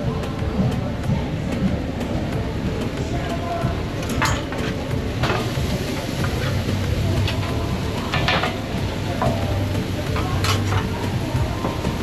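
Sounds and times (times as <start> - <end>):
food frying sizzle: 2.8 - 12.0
metal kitchenware clattering: 10.2 - 11.0.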